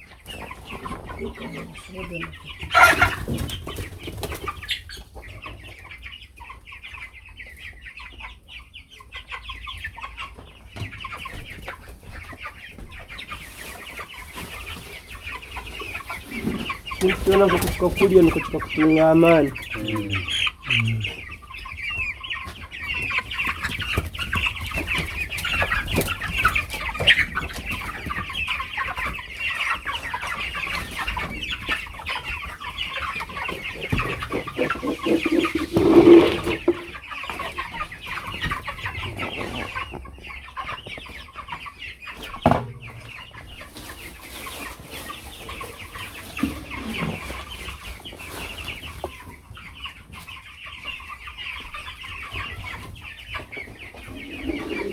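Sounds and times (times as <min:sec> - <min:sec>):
chickens cheeping and clucking: 0:00.0 - 0:54.9
scattered knocks: 0:42.4 - 0:43.2.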